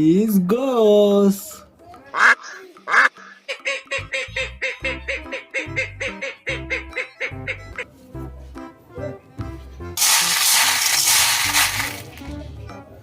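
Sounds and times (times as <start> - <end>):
upbeat background music: 3.9 - 13.0.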